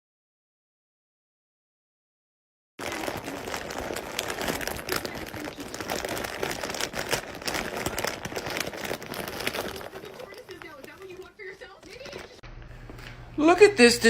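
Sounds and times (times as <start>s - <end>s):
dense crinkling and crackling: 2.8s - 12.4s.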